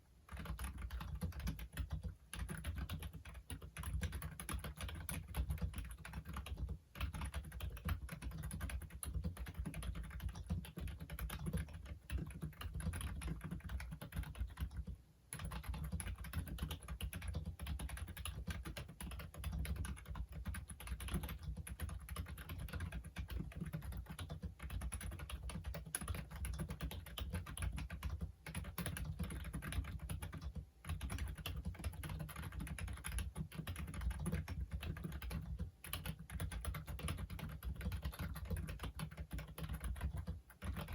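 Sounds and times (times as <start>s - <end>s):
fast typing on keyboard: 0.3s - 40.9s.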